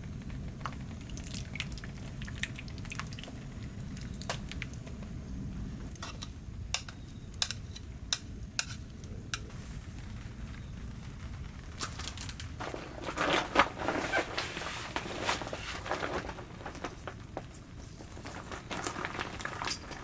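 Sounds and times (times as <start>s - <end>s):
utensils tapping pan and dishes: 6.0s - 9.5s.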